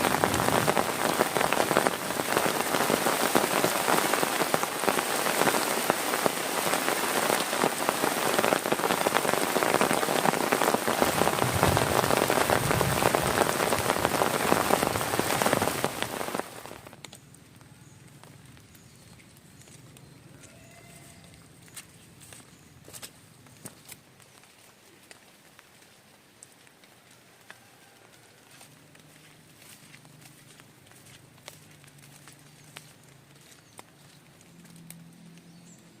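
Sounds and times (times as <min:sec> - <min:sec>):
heavy rain falling: 0:00.0 - 0:18.8.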